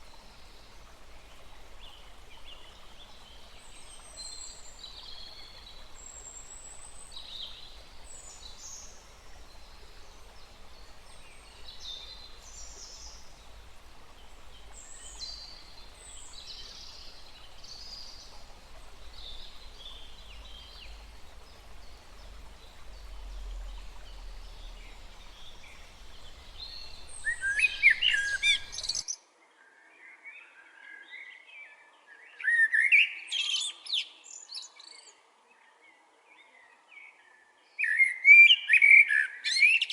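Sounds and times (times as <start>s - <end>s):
faint steady background noise: 0.0s - 30.8s
birds chirping and singing: 3.1s - 29.0s.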